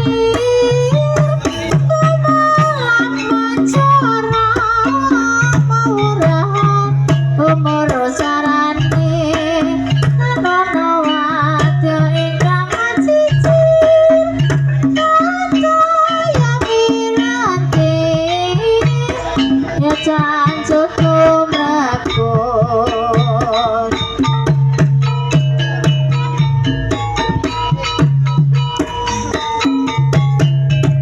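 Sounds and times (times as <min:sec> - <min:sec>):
wavering sung melody: 0:00.0 - 0:14.4, 0:25.5 - 0:30.7
hand drum beats: 0:00.0 - 0:31.0
tuned percussion: 0:00.0 - 0:31.0.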